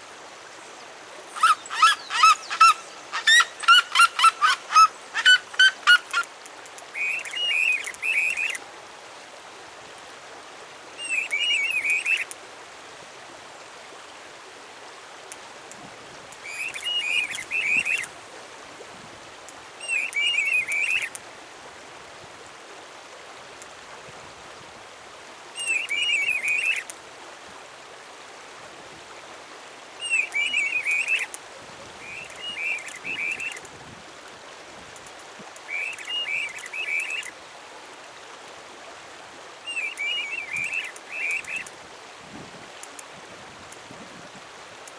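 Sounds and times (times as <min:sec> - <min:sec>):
running water: 0:00.0 - 0:44.9
songbird singing warbled phrases: 0:01.4 - 0:06.2, 0:30.0 - 0:31.2, 0:32.0 - 0:33.6, 0:35.7 - 0:37.3, 0:39.7 - 0:41.7.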